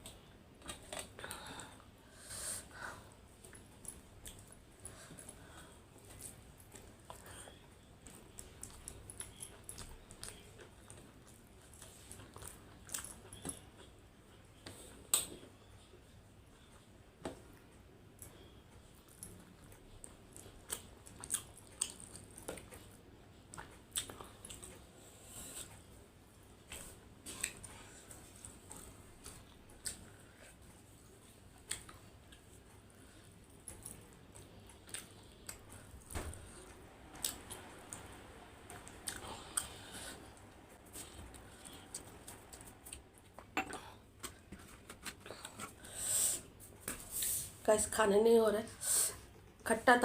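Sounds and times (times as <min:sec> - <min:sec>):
person chewing food: 0:03.3 - 0:14.0, 0:18.2 - 0:47.3
chewing and mouth smacks: 0:08.0 - 0:13.9, 0:19.0 - 0:24.8.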